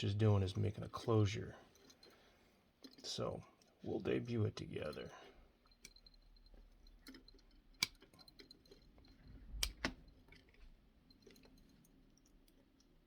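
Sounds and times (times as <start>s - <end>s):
wire connector clicks: 9.6s - 10.0s.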